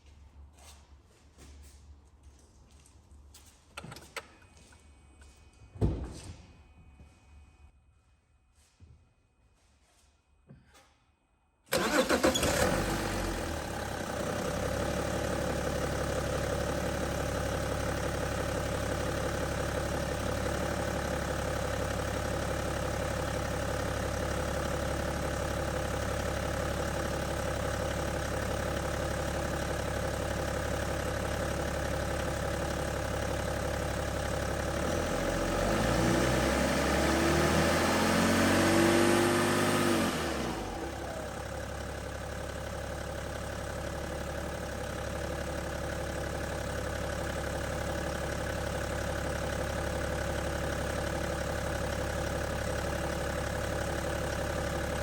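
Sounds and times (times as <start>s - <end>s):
diesel engine idling and revving: 11.7s - 55.0s.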